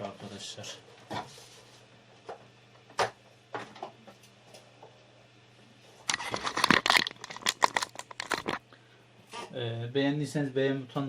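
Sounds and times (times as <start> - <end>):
crackling and rustling: 6.1 - 8.6.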